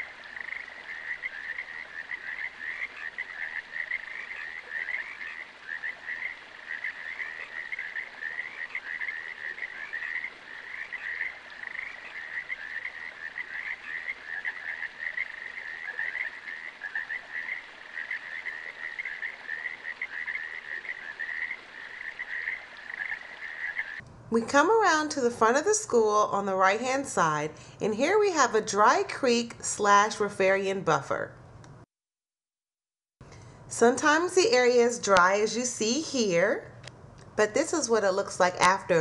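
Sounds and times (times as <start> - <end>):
chorus of frogs calling: 0.0 - 24.0.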